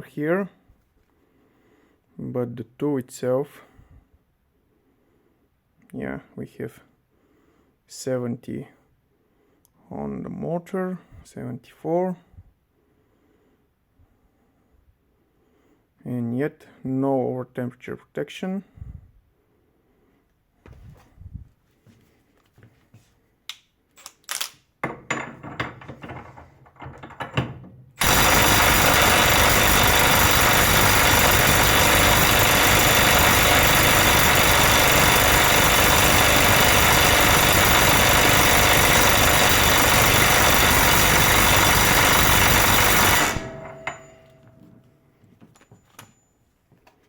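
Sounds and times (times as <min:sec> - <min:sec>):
handling clicks and knocks: 0:24.0 - 0:27.9
impact wrench hammering: 0:26.8 - 0:44.6.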